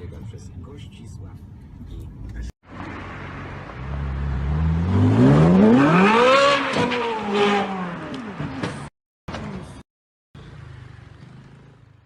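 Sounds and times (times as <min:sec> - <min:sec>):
car engine revving hard: 0:03.8 - 0:08.3.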